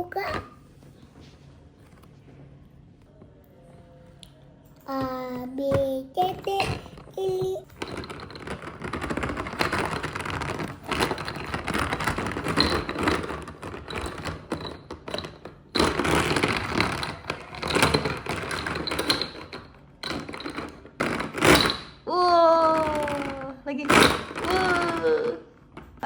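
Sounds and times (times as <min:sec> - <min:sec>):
plastic toy cars clattering: 0:04.9 - 0:22.0, 0:22.6 - 0:26.0.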